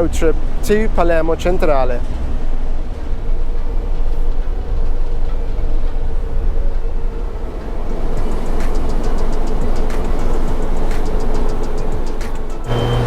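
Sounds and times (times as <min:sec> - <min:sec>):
low rumble aboard train ferry: 0:00.0 - 0:13.0
faint steady hum: 0:02.2 - 0:13.0.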